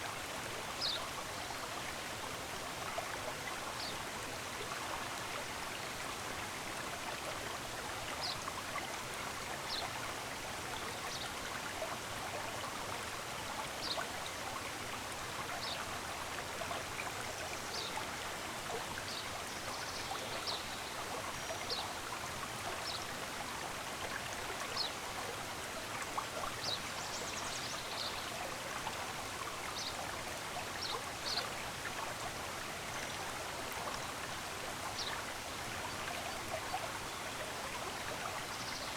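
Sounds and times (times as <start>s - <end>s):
stream running: 0.0s - 38.9s.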